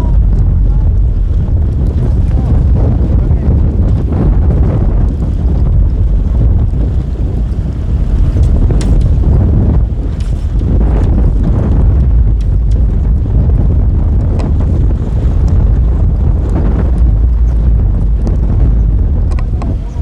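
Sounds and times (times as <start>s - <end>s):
strong gusting wind on microphone: 0.0s - 20.0s.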